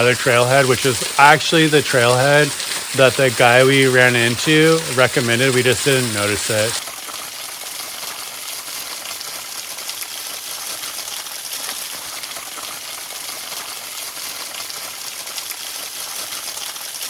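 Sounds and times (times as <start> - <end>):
waterfall rushing: 0.0 - 7.5.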